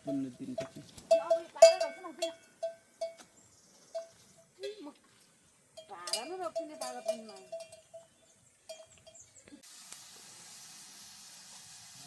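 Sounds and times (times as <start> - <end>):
animal bell clanking: 0.0 - 3.2, 5.8 - 9.4
heavy rain hiss: 9.6 - 12.0.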